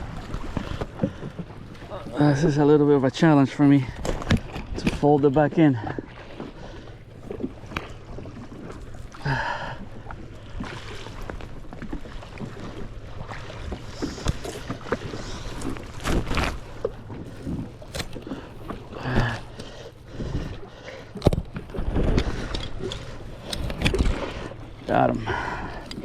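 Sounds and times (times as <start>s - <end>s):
low steady hum: 0.0s - 26.0s
fishing gear knocks and clicks: 14.0s - 24.4s, 25.6s - 26.0s.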